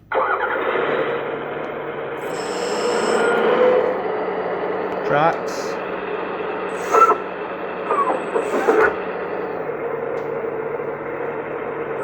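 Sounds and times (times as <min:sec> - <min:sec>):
excavator diesel engine running: 0:00.0 - 0:12.0
tracks clanking: 0:03.1 - 0:12.0.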